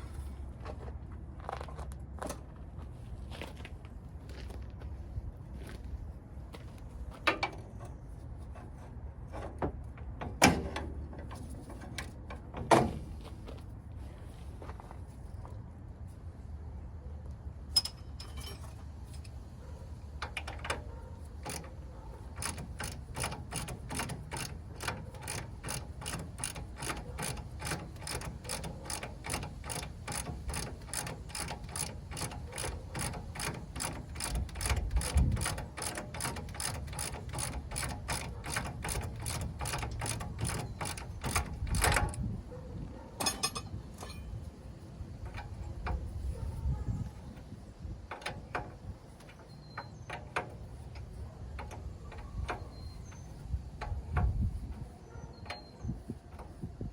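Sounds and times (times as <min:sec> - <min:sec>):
ratchet wrench clicking: 0:20.2 - 0:42.2.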